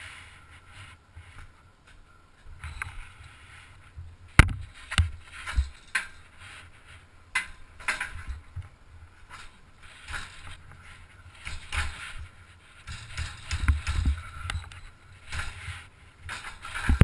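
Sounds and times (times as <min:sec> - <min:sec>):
hard knocks and clanks: 0:12.8 - 0:15.7.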